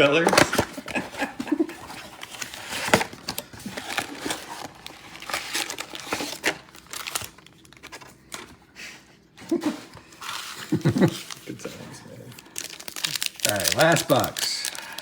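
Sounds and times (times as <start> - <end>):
card wrappers crinkling: 0.0 - 8.6, 10.1 - 15.0
cards being handled: 9.9 - 15.0.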